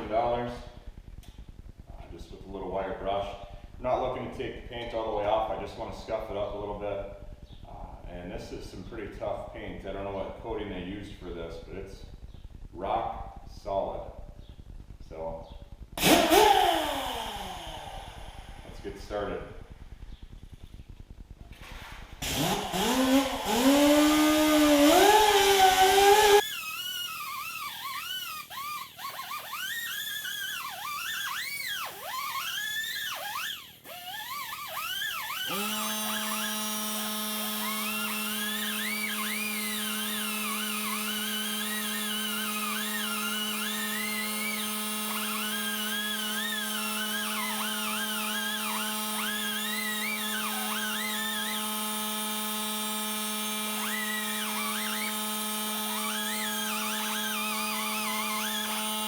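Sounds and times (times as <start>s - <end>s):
steady low hum: 0.0s - 59.0s
wire brush grinder whining on metal: 16.0s - 19.4s, 21.5s - 59.0s.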